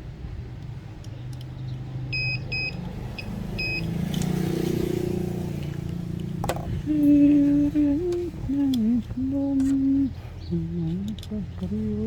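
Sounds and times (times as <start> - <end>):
vehicle rumble: 0.0 - 12.0
short electronic beeps: 2.1 - 3.9
steady hummed note: 6.7 - 12.0
click: 8.1 - 8.9, 10.9 - 11.4.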